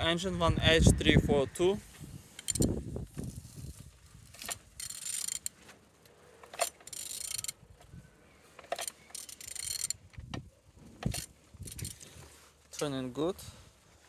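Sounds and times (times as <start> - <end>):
engine turned over by hand: 11.0 - 12.0.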